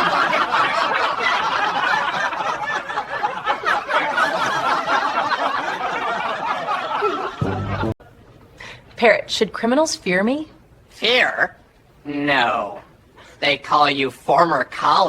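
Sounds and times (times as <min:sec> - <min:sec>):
crowd laughing: 0:00.0 - 0:08.2.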